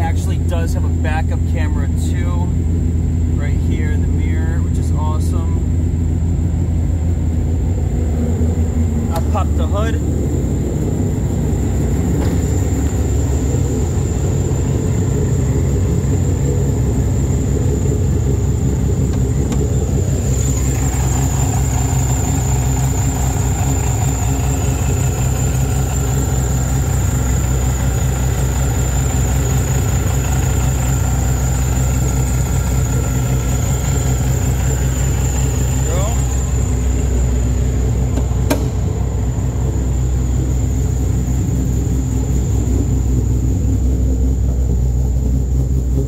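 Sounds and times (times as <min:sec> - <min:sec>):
car engine idling: 0:00.0 - 0:46.0.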